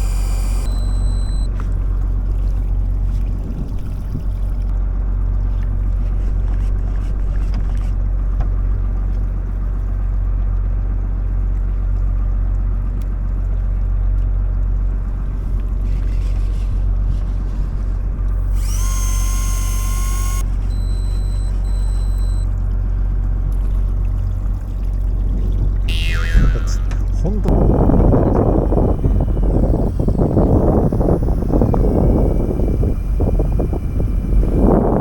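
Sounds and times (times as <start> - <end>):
high whine: 0.0 - 1.5, 18.3 - 22.5, 25.9 - 35.0
boat engine humming: 0.0 - 35.0.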